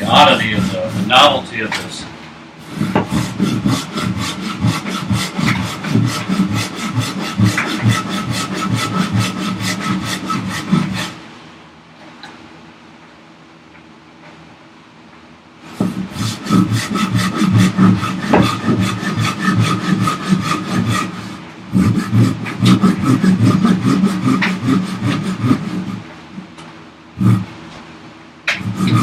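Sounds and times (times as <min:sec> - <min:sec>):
hand saw cutting wood: 0:00.0 - 0:02.0, 0:02.6 - 0:11.2, 0:15.7 - 0:26.0, 0:27.2 - 0:27.5, 0:28.5 - 0:29.0.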